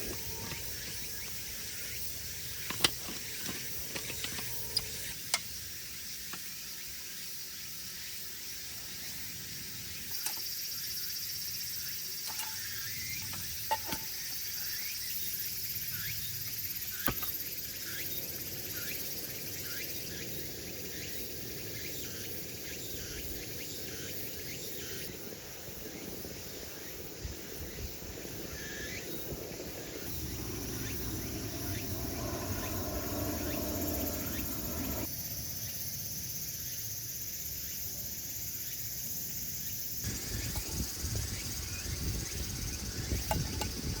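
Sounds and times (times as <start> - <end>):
insects chirring: 0.0 - 44.0
low rushing noise: 29.2 - 35.1.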